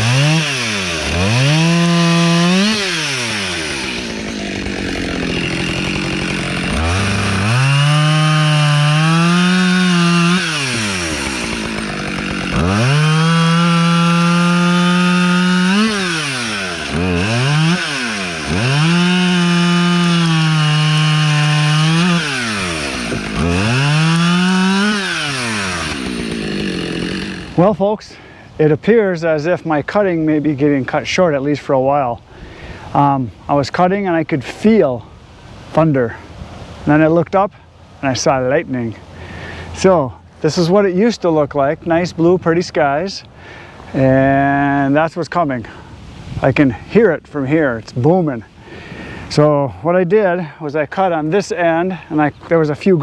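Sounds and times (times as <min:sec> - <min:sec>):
chainsaw cutting logs: 0:00.0 - 0:27.8.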